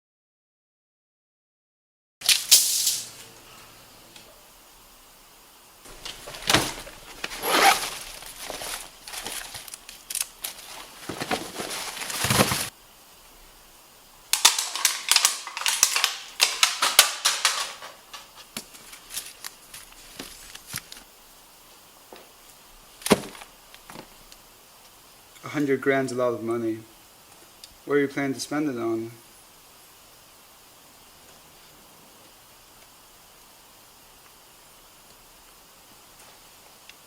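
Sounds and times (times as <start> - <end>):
toy blasters popping: 14.3 - 18.2.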